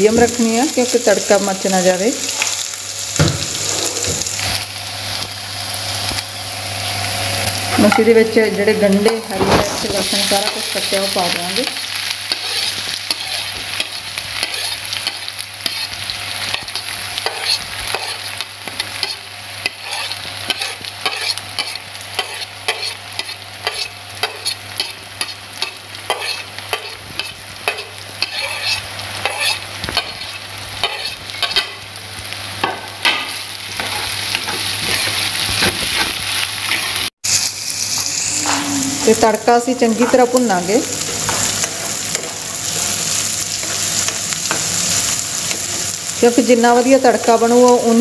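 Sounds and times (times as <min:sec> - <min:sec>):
vegetables sizzling in oil: 0:00.0 - 0:48.0
utensils scraping a pan: 0:09.1 - 0:31.8.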